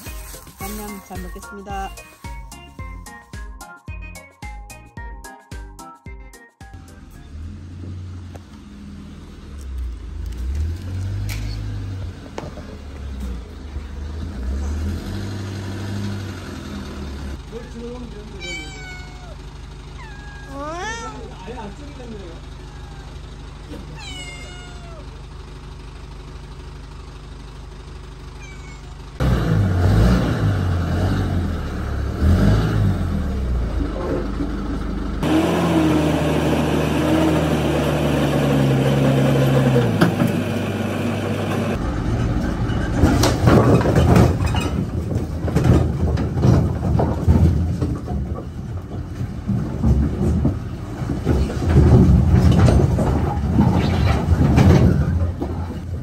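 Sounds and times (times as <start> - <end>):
truck engine running: 0.0 - 5.1, 6.7 - 56.0
firewood logs knocking and clattering: 42.3 - 56.0.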